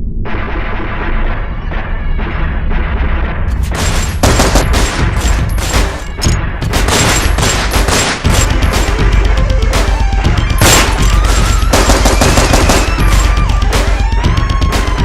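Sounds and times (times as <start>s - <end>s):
background music: 0.2s - 15.0s
gunfire bursts: 3.6s - 9.0s, 10.6s - 13.5s.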